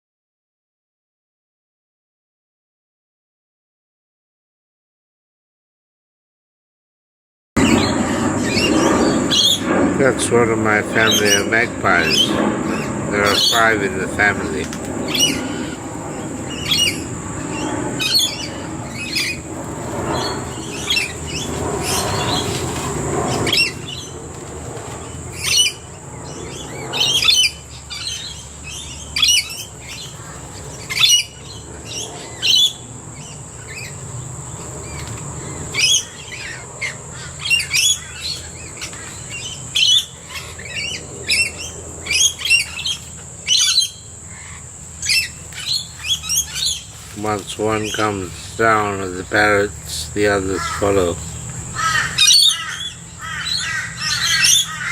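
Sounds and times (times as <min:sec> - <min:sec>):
low rumble: 0:07.6 - 0:35.6
steady high hiss: 0:07.6 - 0:54.8
birds squawking and chirping: 0:07.6 - 0:54.9.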